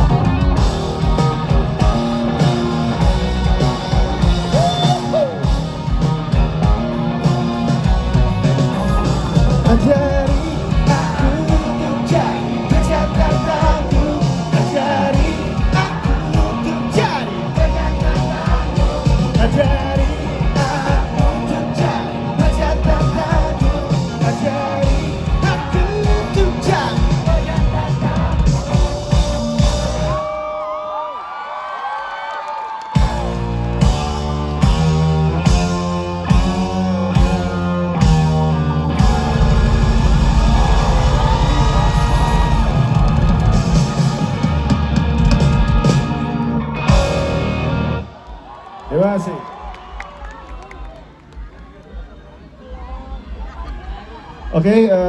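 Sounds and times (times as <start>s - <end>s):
rock band playing live: 0.0s - 30.4s, 33.0s - 48.2s
person singing: 8.7s - 30.2s.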